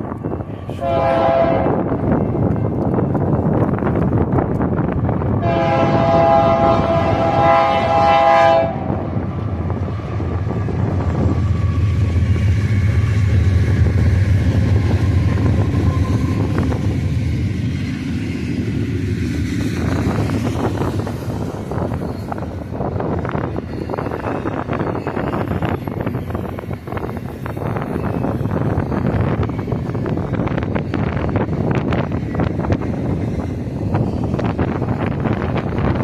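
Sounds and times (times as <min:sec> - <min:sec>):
train rumbling: 0:00.0 - 0:36.0
locomotive horn blast: 0:00.7 - 0:01.9, 0:05.4 - 0:09.1.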